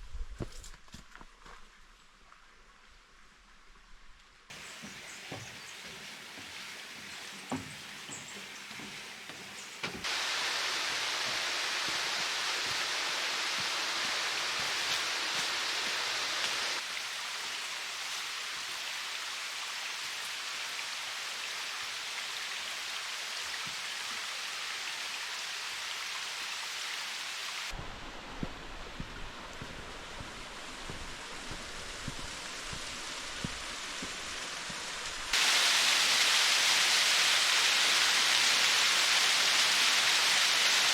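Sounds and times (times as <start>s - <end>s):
stream rushing over rocks: 10.0s - 40.9s.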